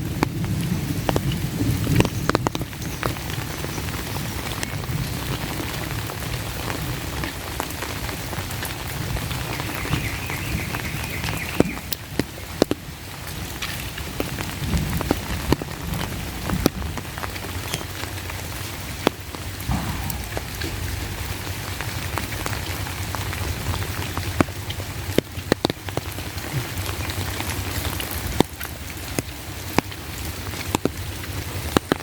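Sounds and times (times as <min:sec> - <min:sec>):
heavy raindrops ticking: 0:00.0 - 0:32.0
steady rain falling: 0:00.0 - 0:32.0.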